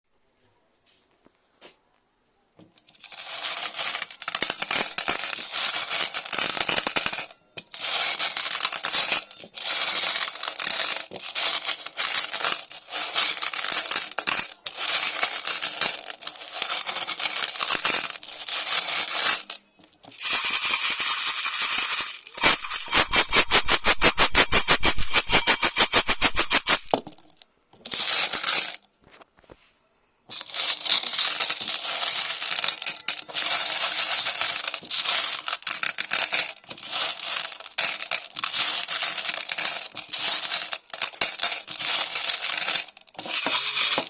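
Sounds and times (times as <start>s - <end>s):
dense crackling and scraping: 22.3s - 27.4s.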